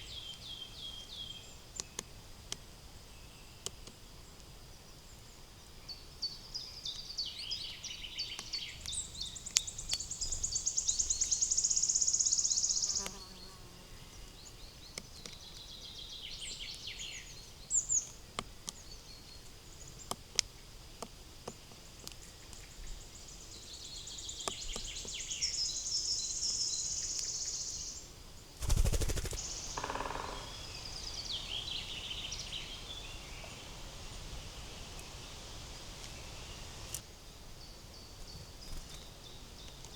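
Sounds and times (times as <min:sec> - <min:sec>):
sharp ticks: 0:28.6 - 0:30.5
songbirds trilling: 0:28.6 - 0:37.0.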